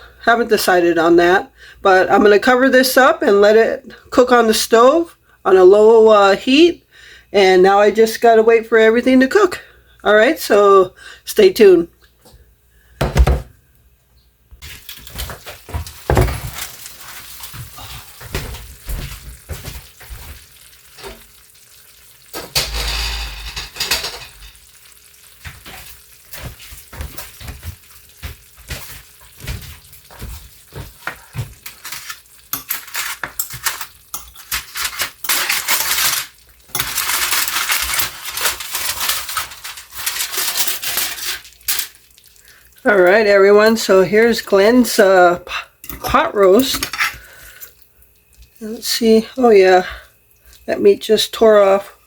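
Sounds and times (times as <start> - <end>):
cooking hiss: 14.6 - 52.0
metal utensils clinking on pans: 22.3 - 24.8, 31.6 - 42.0, 45.8 - 47.8.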